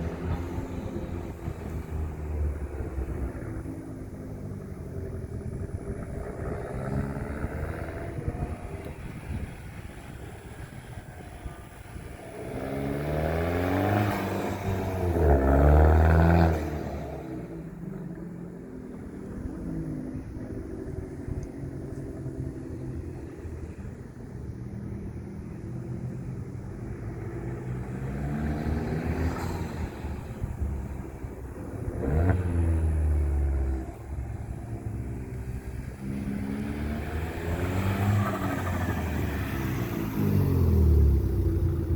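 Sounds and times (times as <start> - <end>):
car engine revving: 11.5 - 17.7, 27.3 - 41.9.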